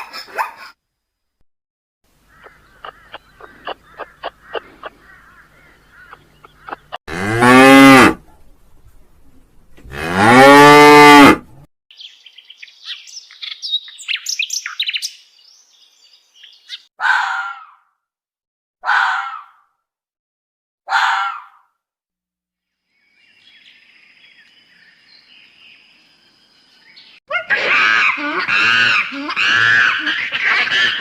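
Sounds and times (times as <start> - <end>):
cow mooing: 7.1 - 8.2, 9.9 - 11.5.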